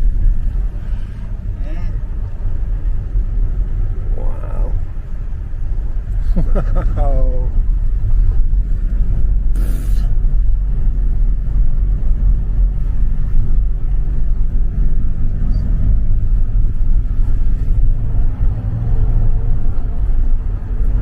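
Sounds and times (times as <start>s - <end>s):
bus engine and tyres rumbling: 0.0s - 21.0s
brief hiss: 9.5s - 10.2s.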